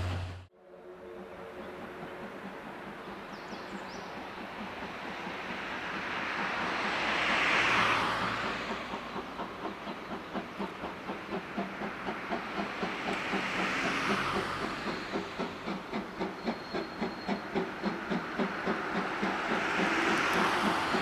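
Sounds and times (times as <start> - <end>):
steam locomotive beats: 0.0 - 21.0
steam hiss: 2.6 - 21.0.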